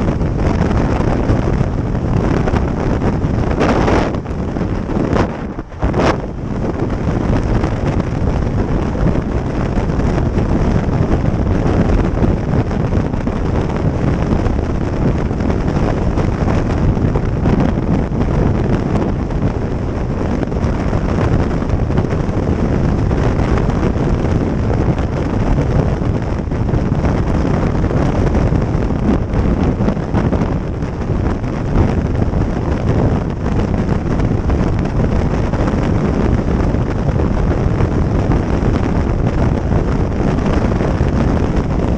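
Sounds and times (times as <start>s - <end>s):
motorcycle running: 0.0s - 41.9s
road noise: 0.0s - 41.9s
wind buffeting microphone: 0.0s - 41.9s.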